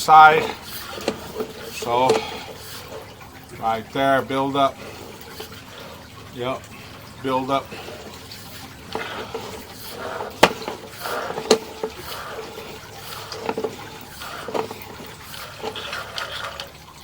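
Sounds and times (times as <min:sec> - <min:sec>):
water trickling in a pipe: 0:00.0 - 0:17.0
camera knocking against pipe: 0:08.9 - 0:15.8.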